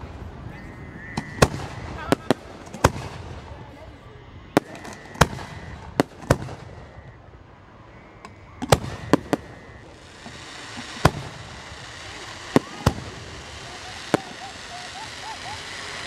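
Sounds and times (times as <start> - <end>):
firework shells bursting: 8.2 - 16.0.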